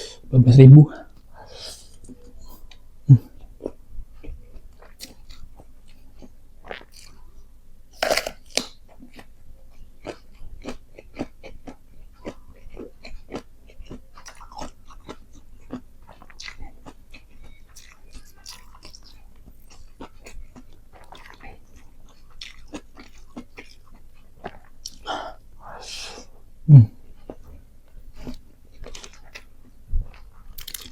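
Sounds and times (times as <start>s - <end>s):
light food crunches: 8.0s - 9.3s, 30.5s - 30.9s.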